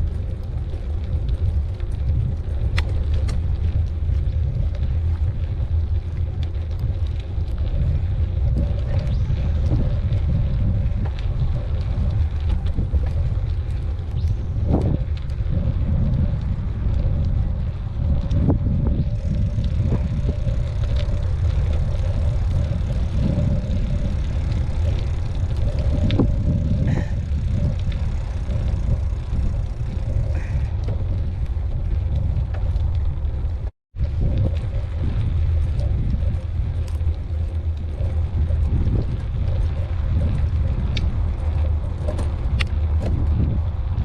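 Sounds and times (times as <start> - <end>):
small clicks: 0.0 - 10.3, 34.3 - 43.5
bike tyres rolling and rattling: 0.0 - 44.0.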